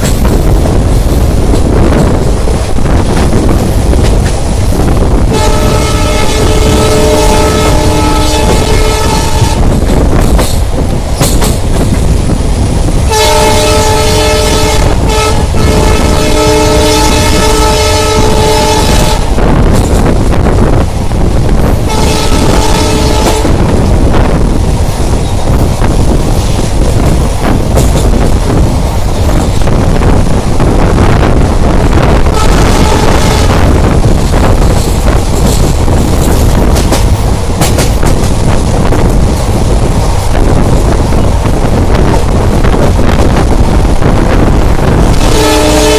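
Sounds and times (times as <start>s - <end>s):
train wheel clicks: 0.0s - 5.1s, 9.6s - 13.0s, 19.4s - 21.8s, 23.2s - 30.9s, 34.0s - 45.2s
train rumbling: 0.0s - 45.9s
locomotive horn blast: 5.3s - 9.8s, 13.1s - 19.4s, 21.9s - 23.7s, 32.3s - 33.8s, 45.2s - 45.9s.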